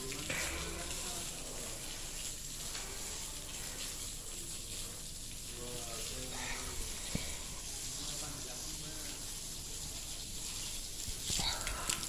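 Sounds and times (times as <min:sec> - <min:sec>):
faint voices: 0:00.0 - 0:12.0
steady hiss: 0:00.0 - 0:12.0.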